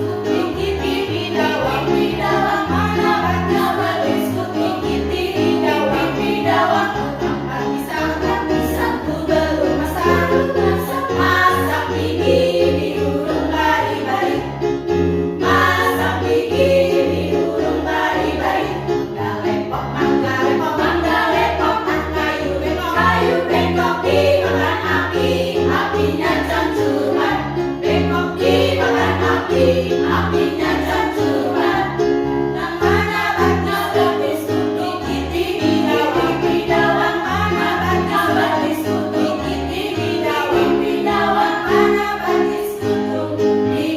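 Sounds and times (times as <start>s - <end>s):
choir singing: 0.0s - 43.9s.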